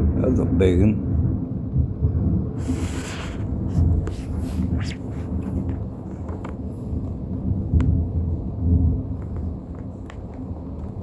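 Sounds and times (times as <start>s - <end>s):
thunder rumbling: 0.0s - 11.0s
brief hiss: 2.6s - 3.5s.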